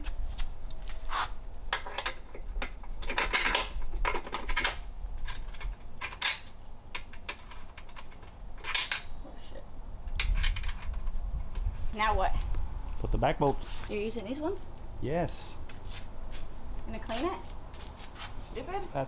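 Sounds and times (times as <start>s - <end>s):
metal parts clanking: 1.7s - 9.2s.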